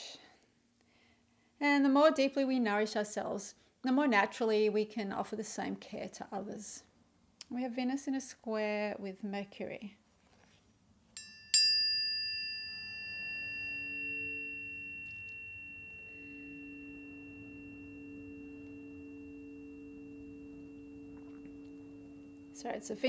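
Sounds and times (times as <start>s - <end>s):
tuning forks ringing: 11.2s - 23.0s.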